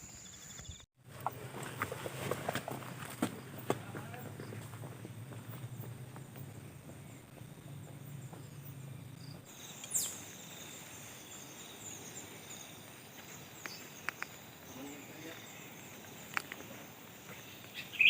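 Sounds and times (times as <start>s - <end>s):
high insect drone: 3.4s - 18.0s
small bird chirps: 8.0s - 18.0s.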